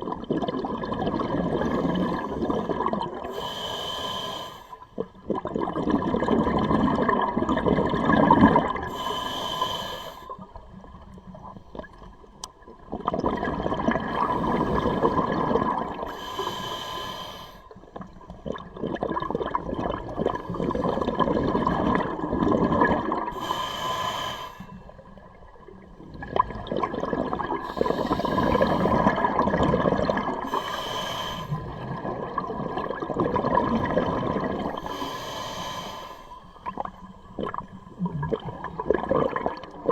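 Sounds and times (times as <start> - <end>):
bubbling exhalations underwater: 0.0 - 3.3, 5.0 - 8.9, 12.8 - 16.1, 18.0 - 23.5, 26.0 - 30.7, 31.6 - 34.9, 36.7 - 39.9
regulator inhalation hiss: 3.3 - 4.8, 8.9 - 10.3, 16.1 - 17.7, 23.4 - 24.9, 27.7 - 29.0, 30.5 - 31.7, 34.8 - 36.4.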